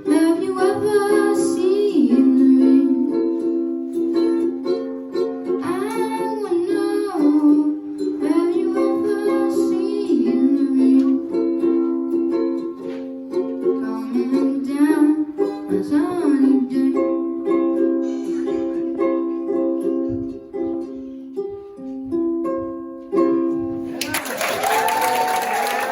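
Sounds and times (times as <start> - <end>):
person singing: 0.0 - 4.4, 5.4 - 12.0, 13.6 - 17.6
ukulele strumming chords: 0.0 - 24.0.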